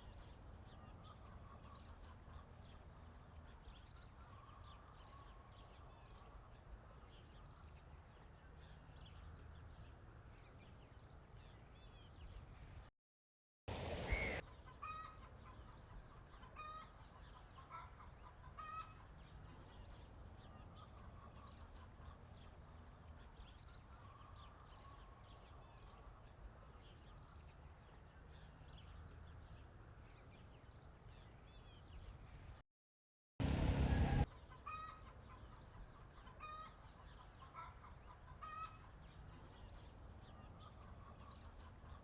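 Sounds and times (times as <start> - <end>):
loud noise burst: 33.4 - 34.3.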